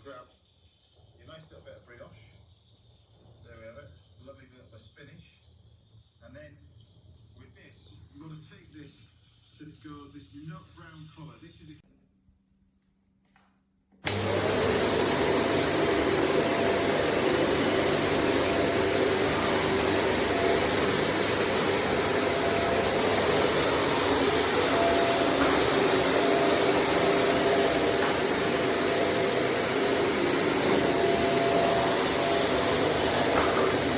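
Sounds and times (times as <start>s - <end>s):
vacuum cleaner running: 14.0s - 33.9s.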